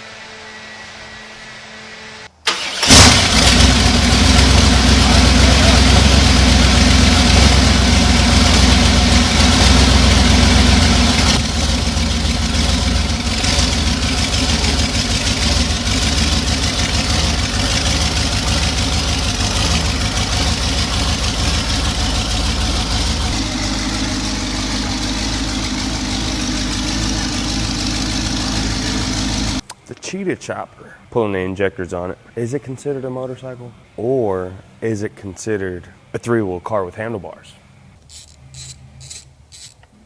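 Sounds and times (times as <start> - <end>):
motorcycle engine idling roughly: 3.8 - 29.6.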